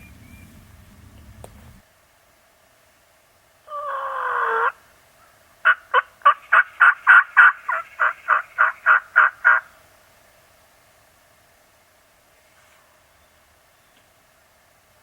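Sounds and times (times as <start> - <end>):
turkey yelping: 3.7 - 4.8, 5.6 - 9.7.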